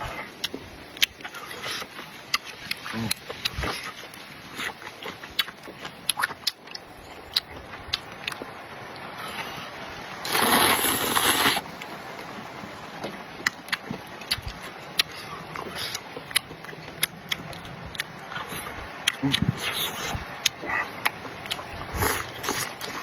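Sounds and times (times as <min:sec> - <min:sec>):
chewing crunches: 0:00.4 - 0:08.5, 0:13.4 - 0:23.0
hissing rush: 0:10.2 - 0:11.7.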